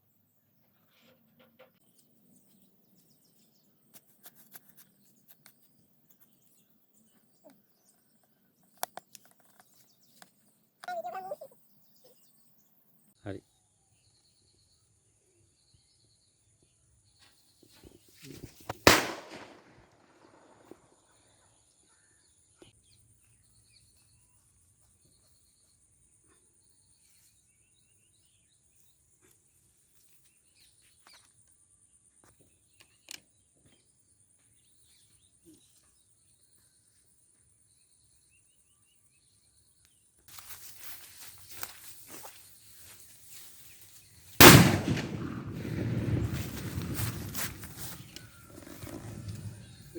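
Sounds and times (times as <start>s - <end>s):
faint chirps: 0.0s - 18.6s
firecracker bang: 18.7s - 19.8s, 44.4s - 48.1s
crackling hiss: 40.3s - 48.2s
small crackles: 40.3s - 49.6s.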